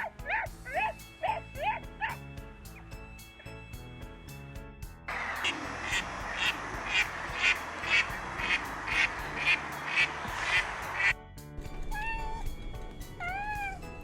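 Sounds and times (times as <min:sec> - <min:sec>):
animal calling: 0:00.0 - 0:02.3, 0:05.1 - 0:11.1, 0:13.2 - 0:13.9
music: 0:00.0 - 0:14.0
steady noisy background: 0:05.1 - 0:11.1.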